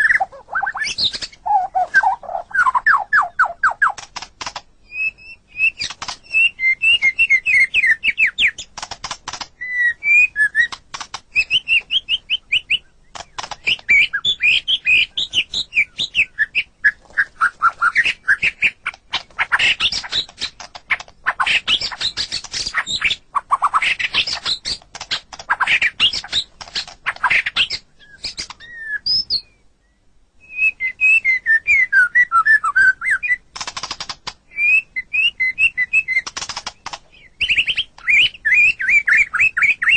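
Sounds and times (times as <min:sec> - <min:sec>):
songbird whistling song: 0:00.0 - 0:04.1, 0:04.8 - 0:08.7, 0:09.6 - 0:33.5, 0:34.5 - 0:39.9
bird harsh clicking notes: 0:00.0 - 0:28.8, 0:33.2 - 0:34.4, 0:35.1 - 0:39.9.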